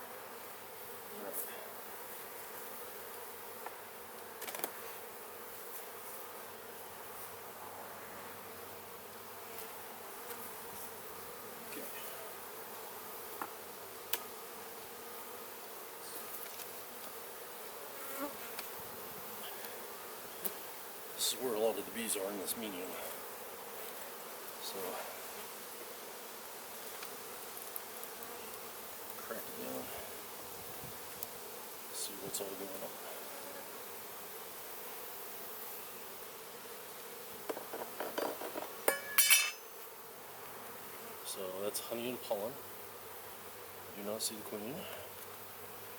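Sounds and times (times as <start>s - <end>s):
honeybees buzzing: 0.0s - 45.9s
clicks and scrapes of hive frame: 2.5s - 5.1s, 13.3s - 14.4s, 16.2s - 17.2s, 18.4s - 18.8s, 26.7s - 29.2s, 37.0s - 38.9s
sharp ringing clinks: 38.9s - 39.7s.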